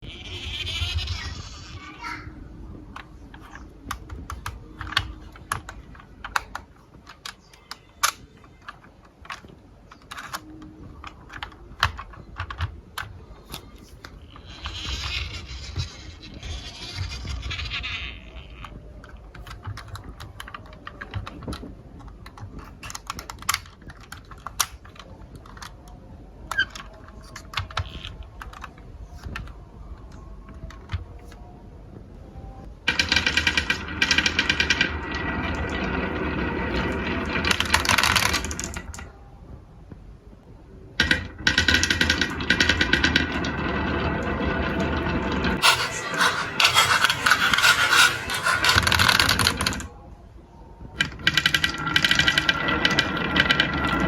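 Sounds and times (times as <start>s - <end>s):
marbles rattling down marble run: 32.9s - 38.8s, 41.0s - 49.9s, 51.2s - 54.0s.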